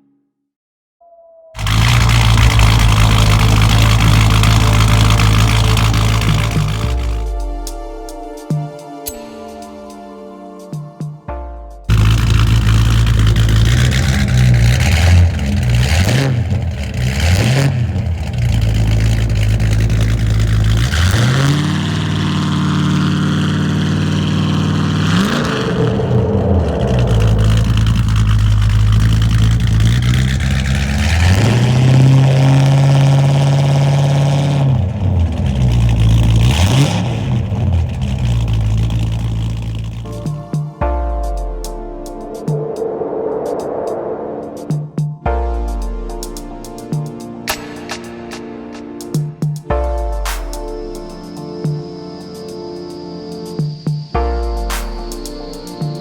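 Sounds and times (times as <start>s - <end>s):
car engine idling and revving: 1.6s - 8.2s, 11.9s - 40.7s.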